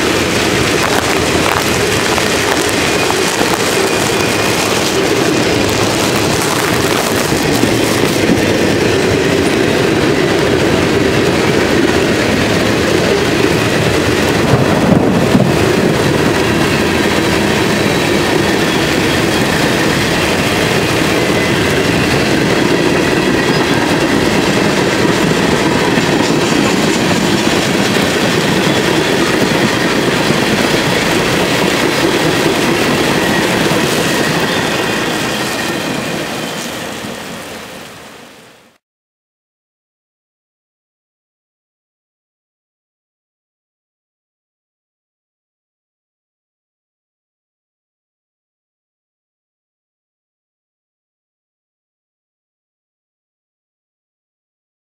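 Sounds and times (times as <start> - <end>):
freight train wheels rumbling: 0.0 - 38.8.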